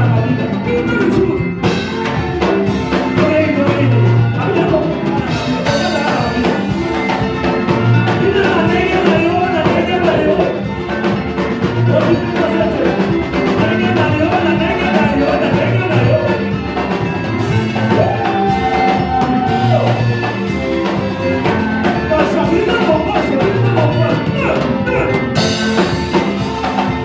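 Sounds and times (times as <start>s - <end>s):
drums: 0.0s - 27.0s
live band playing worship song: 0.0s - 27.0s
repeating bass line: 0.0s - 27.0s
people singing: 3.0s - 10.5s, 17.5s - 20.3s.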